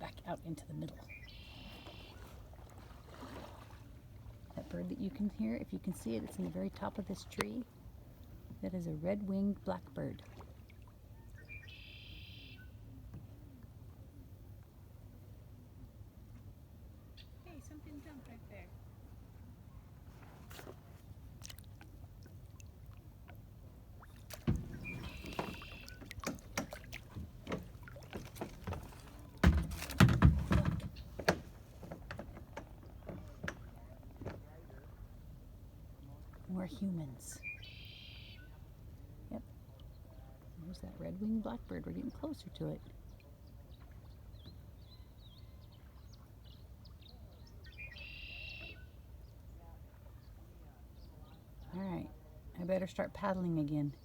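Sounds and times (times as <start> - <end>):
bird chirping: 0.9 - 2.2, 11.2 - 12.9, 24.6 - 26.3, 37.4 - 38.6, 43.0 - 49.4
bird song with buzzy trill: 1.0 - 2.2, 11.2 - 12.8, 37.4 - 38.6, 44.3 - 49.0
short bird call: 11.4 - 12.8, 24.7 - 26.0, 37.4 - 38.5, 47.8 - 49.0
hollow knocks on a boat: 24.3 - 35.0.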